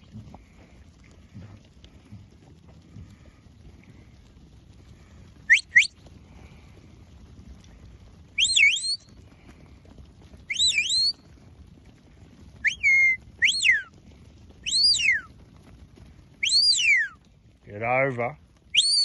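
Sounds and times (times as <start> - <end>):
short sharp whistles: 5.5 - 6.0, 8.4 - 9.1, 10.5 - 11.2, 12.6 - 13.9, 14.6 - 15.3, 16.4 - 17.2, 18.7 - 19.0.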